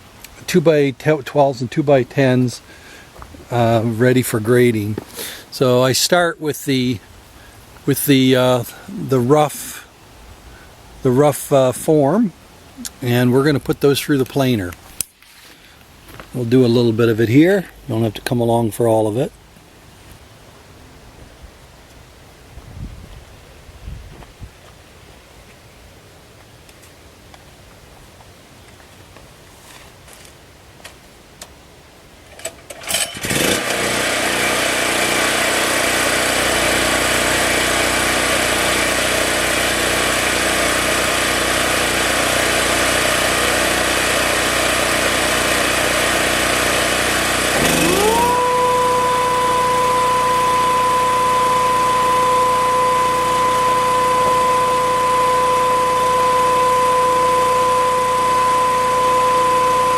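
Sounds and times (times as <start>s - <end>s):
engine running: 32.7s - 59.9s
planer motor whining: 32.9s - 59.9s.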